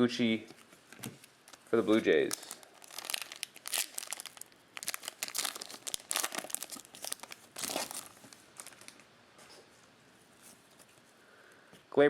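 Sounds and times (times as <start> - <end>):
card packaging crinkling: 0.5 - 9.1.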